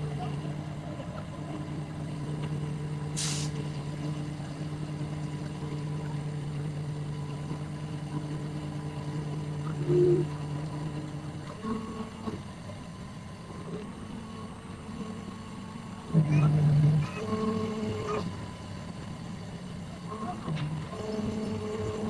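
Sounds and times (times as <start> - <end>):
brief hiss: 3.2 - 3.6.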